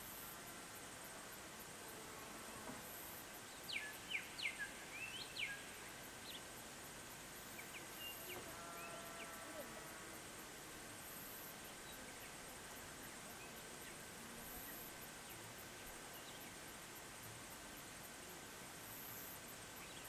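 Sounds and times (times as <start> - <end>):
faint high-pitched ticking and hiss: 0.0 - 20.0
songbird chirping: 3.4 - 6.5.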